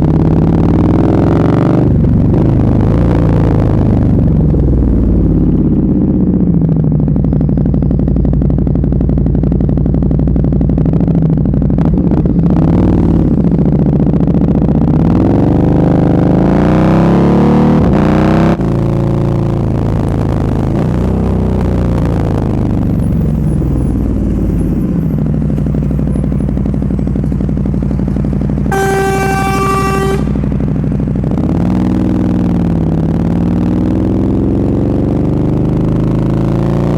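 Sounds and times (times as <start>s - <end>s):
motorcycle engine revving: 0.0s - 36.9s
motorcycle horn: 28.6s - 30.8s.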